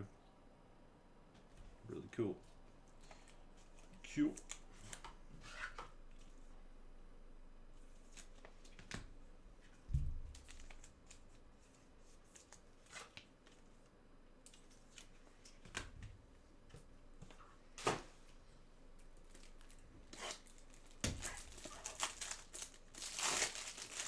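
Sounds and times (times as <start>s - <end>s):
cards clicking and rustling: 2.9s - 6.4s
dull thump: 9.9s - 10.4s.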